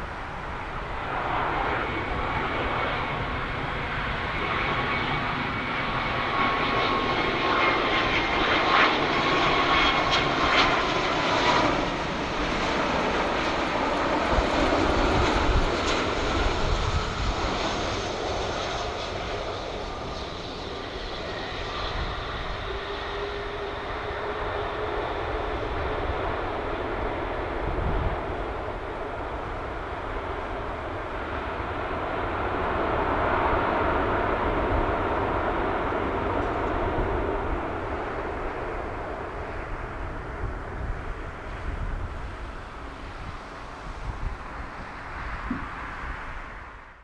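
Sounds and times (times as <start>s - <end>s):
jet airliner rumble and whine: 0.0s - 47.0s.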